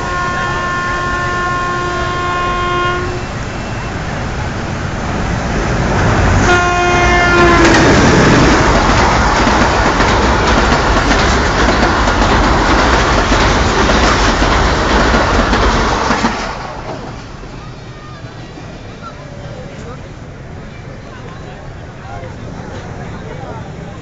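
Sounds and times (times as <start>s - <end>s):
train horn: 0.0s - 3.9s, 6.4s - 8.0s
train wheels running on rails: 0.0s - 24.0s.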